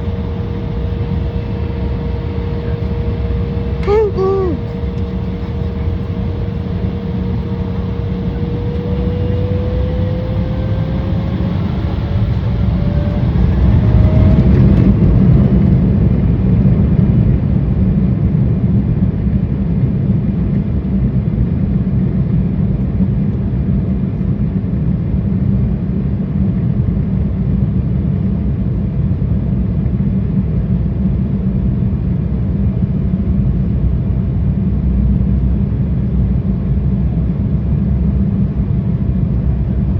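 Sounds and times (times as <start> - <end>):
jet engine whine rising: 0.0 - 17.5
loud steady cabin rumble: 0.0 - 39.9.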